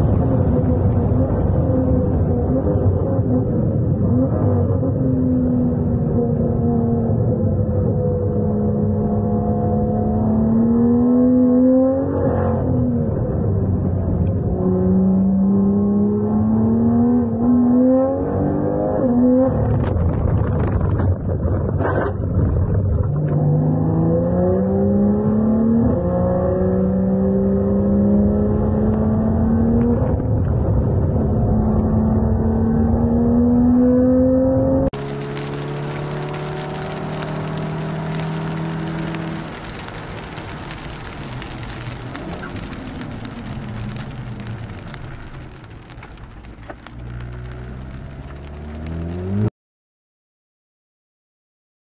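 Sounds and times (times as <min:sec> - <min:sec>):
car engine accelerating: 0:22.7 - 0:45.2, 0:45.9 - 0:49.5
rough rush of noise: 0:35.0 - 0:49.5.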